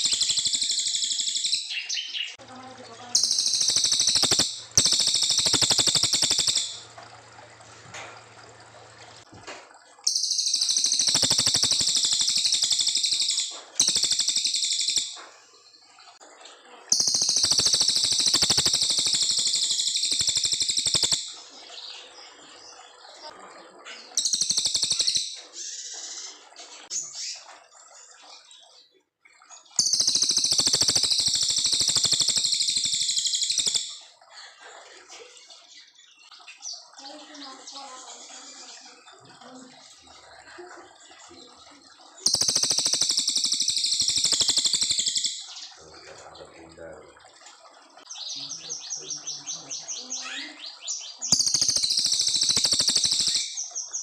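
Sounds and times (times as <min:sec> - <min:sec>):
songbird rapid high trills: 0:03.1 - 0:06.9, 0:10.0 - 0:15.2, 0:16.9 - 0:21.5, 0:29.8 - 0:34.0, 0:42.2 - 0:46.1, 0:51.3 - 0:53.8.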